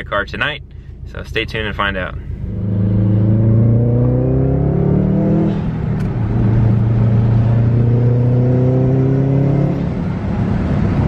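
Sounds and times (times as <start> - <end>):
car engine accelerating: 2.3 - 11.0.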